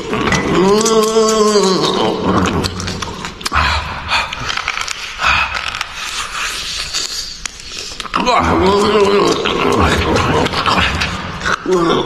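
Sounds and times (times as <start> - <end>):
chewing and gnawing: 0.0 - 12.0
wet mouth smacks and sucking: 4.2 - 8.2.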